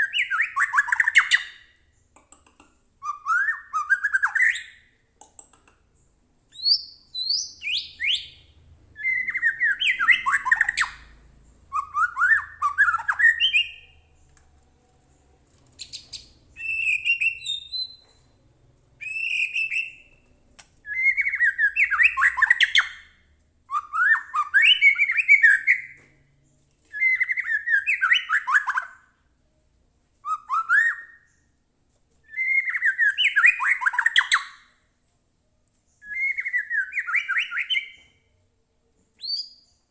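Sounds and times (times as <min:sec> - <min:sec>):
bird singing varied phrases: 0:00.0 - 0:01.8, 0:03.0 - 0:04.9, 0:06.0 - 0:14.2, 0:15.8 - 0:18.2, 0:19.0 - 0:20.2, 0:20.8 - 0:26.0, 0:32.3 - 0:34.6, 0:36.0 - 0:38.1.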